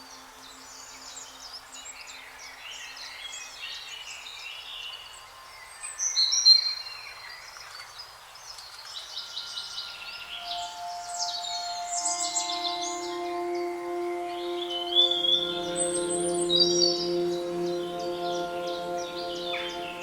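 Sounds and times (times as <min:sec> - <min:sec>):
songbirds chirping and trilling: 0:00.0 - 0:20.0
faint hiss: 0:07.9 - 0:20.0
high whistled bird notes: 0:09.7 - 0:20.0.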